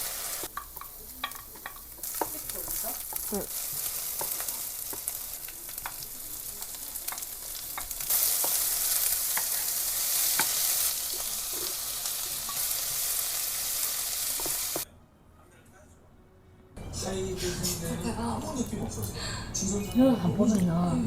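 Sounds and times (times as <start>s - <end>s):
food sizzling in a pan: 0.0s - 14.9s
utensils clicking against pan: 0.4s - 12.9s.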